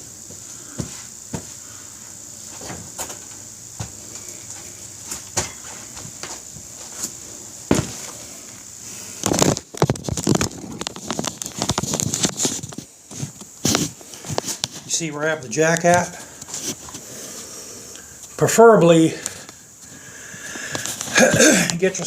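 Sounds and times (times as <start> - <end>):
crackling and rattling handling noise: 9.2 - 15.0.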